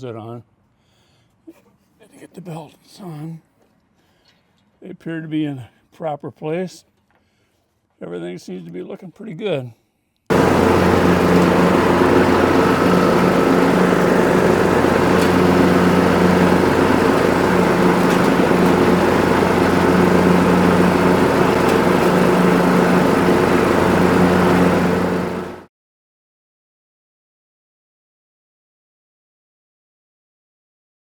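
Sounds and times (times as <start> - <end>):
lawn mower engine running: 10.3 - 25.7.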